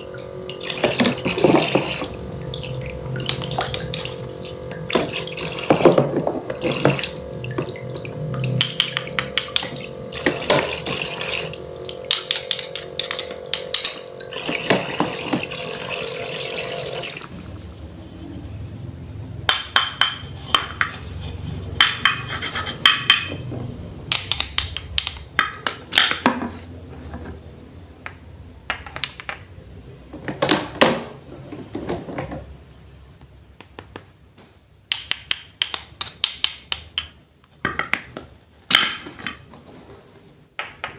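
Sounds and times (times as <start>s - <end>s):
water running from faucet: 0.0s - 17.3s
pump motor humming: 0.0s - 17.7s.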